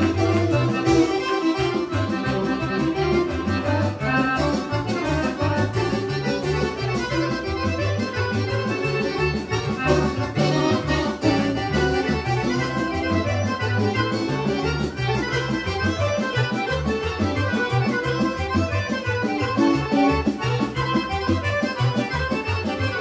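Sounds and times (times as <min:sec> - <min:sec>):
accordion: 0:00.0 - 0:23.0
bass beat: 0:00.0 - 0:23.0
folk band playing: 0:00.0 - 0:23.0.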